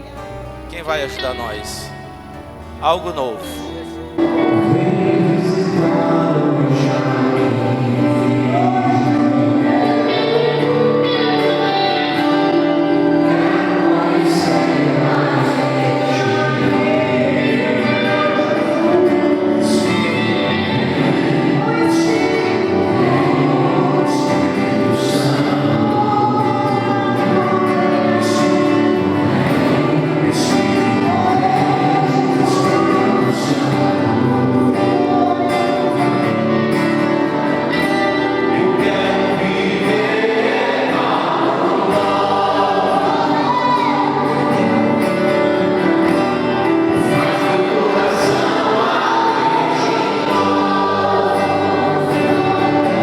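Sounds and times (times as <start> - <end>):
congregation singing gospel song: 0.0 - 53.0.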